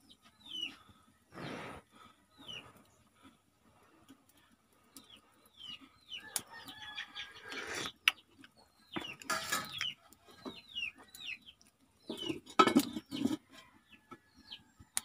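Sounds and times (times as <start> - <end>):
chickens chirping: 0.0 - 15.0
rough chicken calls: 5.0 - 8.1.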